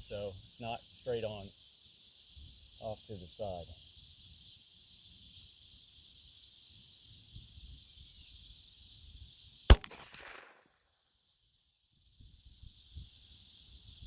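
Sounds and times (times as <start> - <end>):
steady hiss: 0.0 - 10.6
handgun shot with echo: 9.7 - 10.6.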